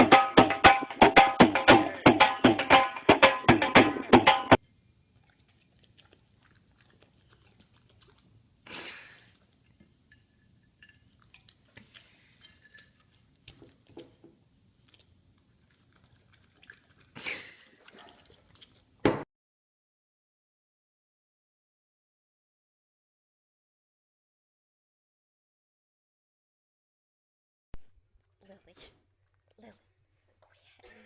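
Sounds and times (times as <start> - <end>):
pet chewing and crunching food: 4.6 - 19.1, 28.2 - 30.7.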